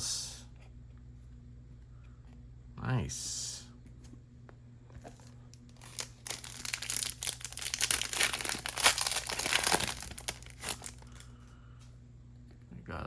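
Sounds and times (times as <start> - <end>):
wrapper tearing and crinkling: 5.7 - 11.2.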